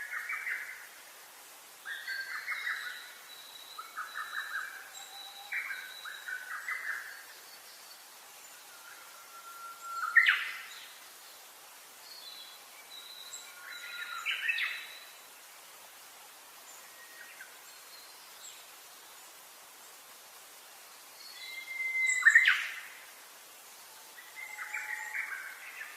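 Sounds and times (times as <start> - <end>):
faint steady hiss: 0.0 - 25.9
songbirds calling: 1.8 - 15.5, 20.9 - 23.1.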